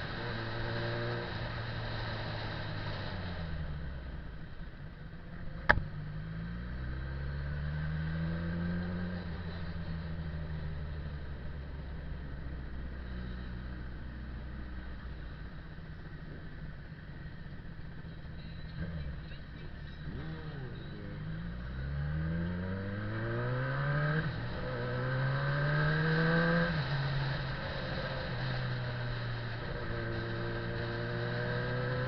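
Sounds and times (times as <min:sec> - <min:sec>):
motorcycle engine accelerating: 0:05.3 - 0:13.7, 0:18.8 - 0:32.0.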